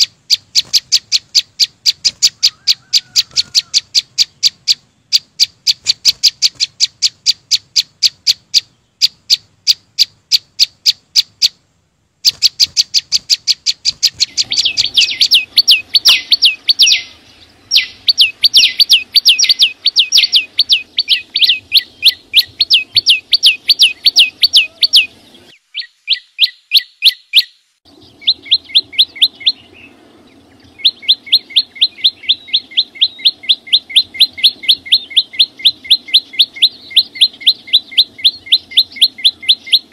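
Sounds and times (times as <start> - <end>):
songbird sharp chip notes: 12.3 - 39.9.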